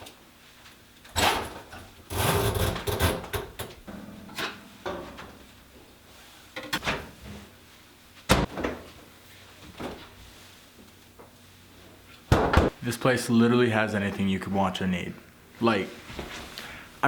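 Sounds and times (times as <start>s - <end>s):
door clunks and knocks: 12.3s - 12.8s.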